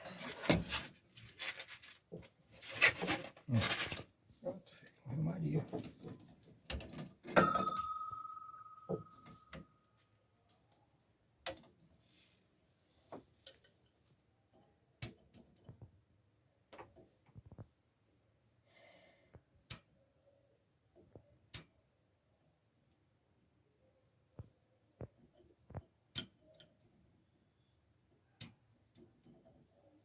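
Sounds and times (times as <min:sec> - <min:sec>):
metallic ring: 0:07.4 - 0:09.5
tools clicking and knocking: 0:13.4 - 0:13.9.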